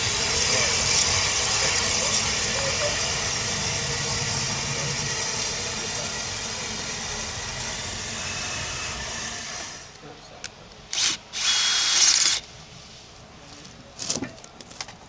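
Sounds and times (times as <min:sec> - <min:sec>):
steam train rumble: 0:00.0 - 0:10.0.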